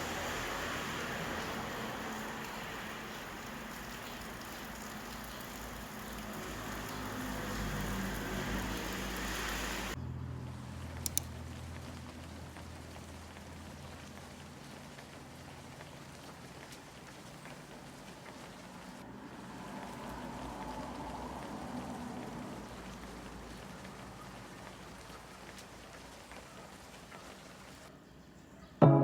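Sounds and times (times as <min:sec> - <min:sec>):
rain hissing: 0:00.0 - 0:10.0, 0:10.8 - 0:27.9
sharp clicks: 0:11.0 - 0:11.4.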